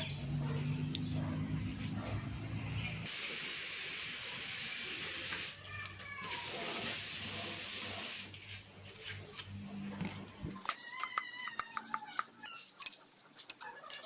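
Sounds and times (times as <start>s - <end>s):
pressurised spray hissing: 3.1s - 5.6s, 6.3s - 8.3s.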